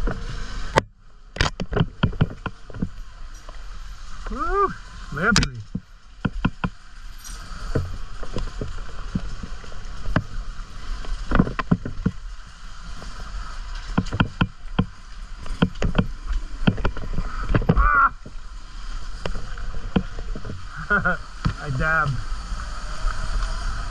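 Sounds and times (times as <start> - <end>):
electric dirt bike rumble: 0.0 - 3.2, 7.4 - 23.9
sharp knocks and clunks: 5.3 - 6.8, 13.9 - 14.9
rising motor whine: 22.2 - 23.9.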